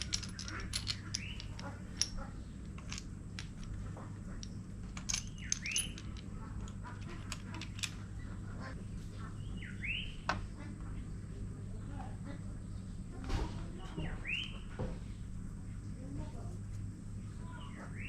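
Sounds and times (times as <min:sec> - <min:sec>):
metallic clinks of tools: 0:00.0 - 0:02.2, 0:05.0 - 0:06.2
steady low hum: 0:00.0 - 0:18.0
bird chirping: 0:05.2 - 0:06.1, 0:09.2 - 0:10.3, 0:14.0 - 0:14.8.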